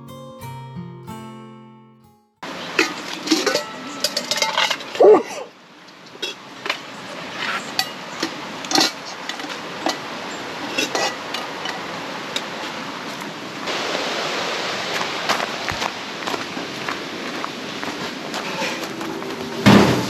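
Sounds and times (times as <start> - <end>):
steady hiss: 13.7 - 20.0.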